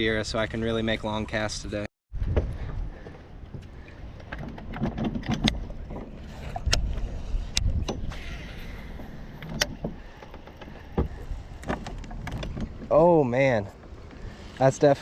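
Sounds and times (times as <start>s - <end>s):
wind buffeting microphone: 2.1s - 14.5s
sharp clicks and knocks: 3.5s - 8.2s.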